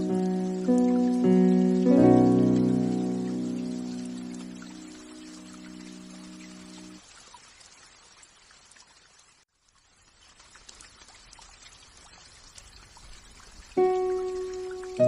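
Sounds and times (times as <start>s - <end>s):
raindrops ticking: 0.0s - 7.0s, 12.5s - 15.0s
faint steady rain: 0.0s - 15.0s.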